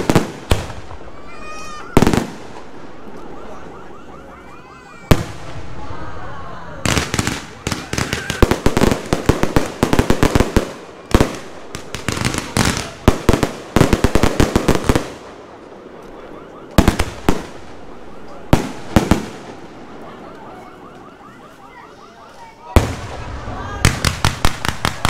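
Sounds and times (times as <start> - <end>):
loud firework bangs: 0.0 - 3.0, 5.0 - 5.9, 6.8 - 16.0, 16.7 - 20.0, 22.7 - 25.0
fireworks crackling bangs: 0.0 - 3.7, 5.0 - 6.0, 6.8 - 21.0, 22.7 - 25.0.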